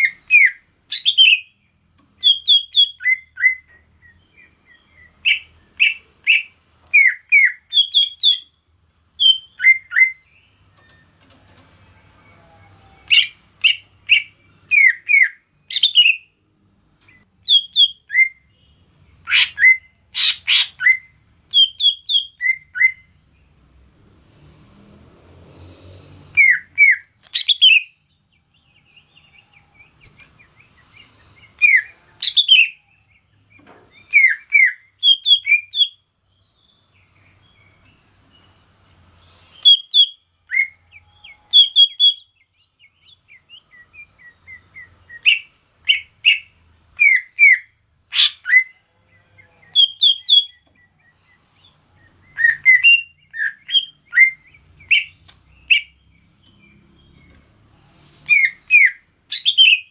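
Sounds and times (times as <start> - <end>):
bird whistling sharp notes: 13.0 - 16.2, 26.3 - 27.9, 34.0 - 36.0, 52.2 - 55.9, 58.2 - 59.9.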